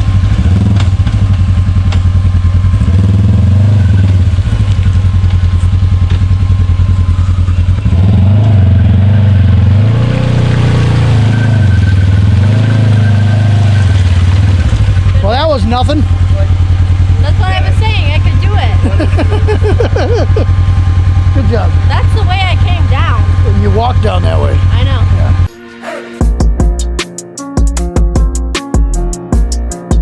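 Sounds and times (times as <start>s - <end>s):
utility vehicle engine revving: 0.0s - 25.5s.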